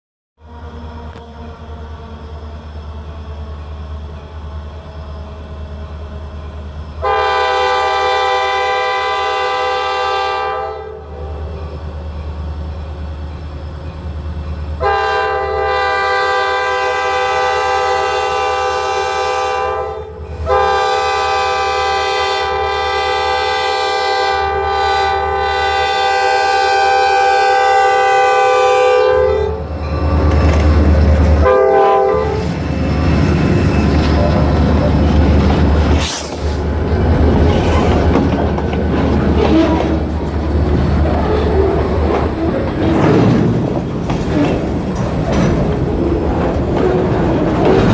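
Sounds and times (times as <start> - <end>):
low train rumble: 0.4 - 47.9
locomotive horn blasts: 7.0 - 11.4, 14.8 - 29.8, 31.4 - 32.6.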